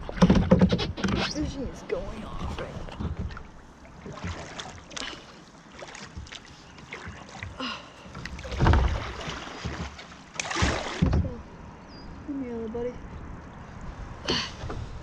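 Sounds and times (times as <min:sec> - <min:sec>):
water splashing around a kayak: 0:00.0 - 0:11.7
heavy thump and splash: 0:02.4 - 0:11.4
small knocks on kayak: 0:08.2 - 0:11.4.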